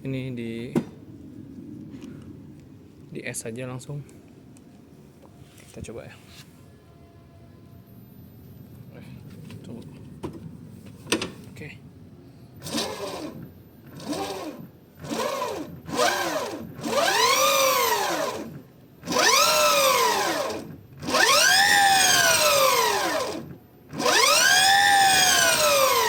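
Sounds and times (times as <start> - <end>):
drive belt whining: 12.6 - 26.0.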